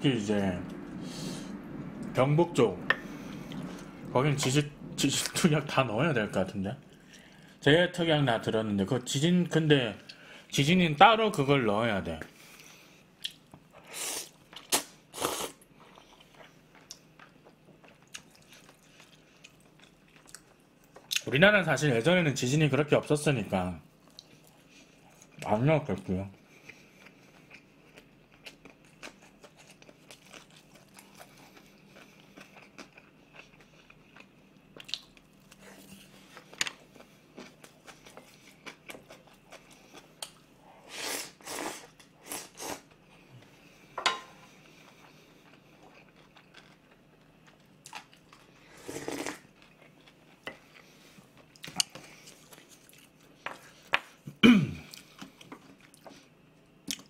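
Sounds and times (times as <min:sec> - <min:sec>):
person chewing and crunching food: 0:12.5 - 0:21.3, 0:26.6 - 0:43.6, 0:44.5 - 0:57.0.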